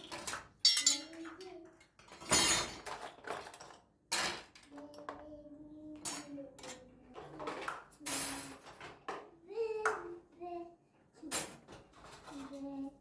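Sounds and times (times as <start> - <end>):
dishes and cutlery clinking: 0.0 - 5.2.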